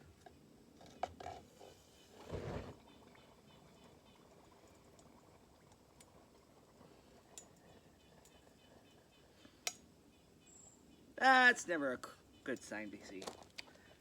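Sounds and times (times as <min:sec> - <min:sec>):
low hiss: 0:01.4 - 0:14.0
faint ticks: 0:03.2 - 0:10.3, 0:12.6 - 0:14.0.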